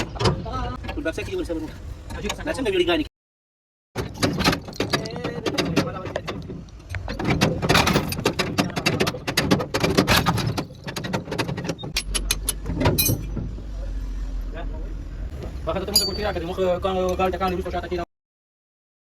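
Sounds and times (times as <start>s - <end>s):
metallic clanks of tools: 4.1s - 13.4s, 15.9s - 17.6s.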